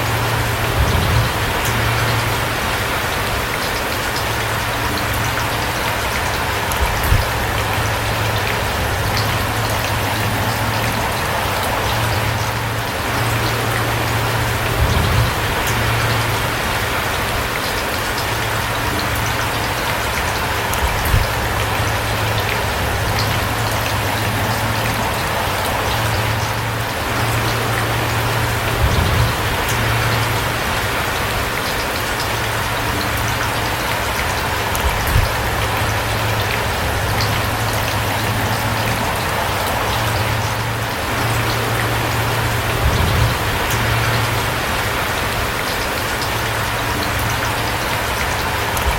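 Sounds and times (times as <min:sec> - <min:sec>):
louder raindrop hits: 0:00.0 - 0:48.9
steady rain falling: 0:00.0 - 0:48.9.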